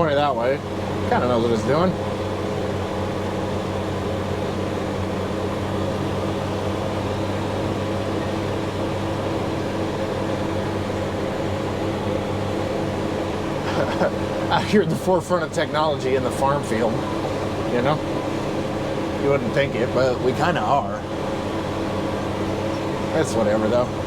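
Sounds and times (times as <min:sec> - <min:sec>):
diesel engine droning: 0:00.0 - 0:24.0.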